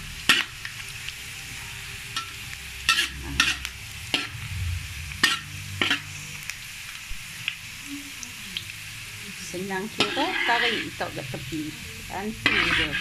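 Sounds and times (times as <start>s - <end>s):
food sizzling in oil: 0.0s - 13.0s
metal spatula scraping a wok: 2.1s - 6.4s, 9.6s - 11.5s, 12.2s - 13.0s.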